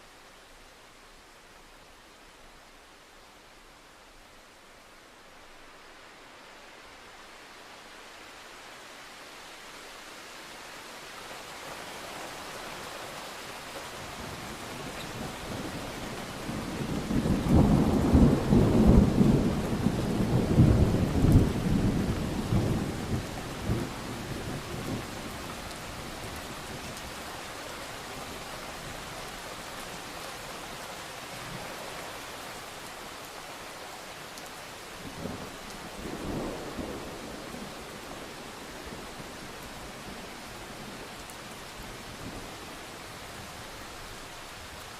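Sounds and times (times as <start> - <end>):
steady rain hiss: 0.0 - 44.9
thunder rumbling: 16.4 - 25.3.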